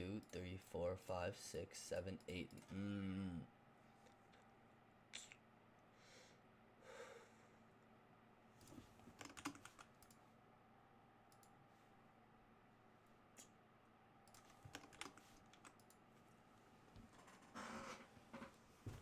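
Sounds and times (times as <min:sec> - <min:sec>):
faint keyboard typing: 0:08.6 - 0:10.2, 0:11.3 - 0:11.6, 0:14.2 - 0:16.4.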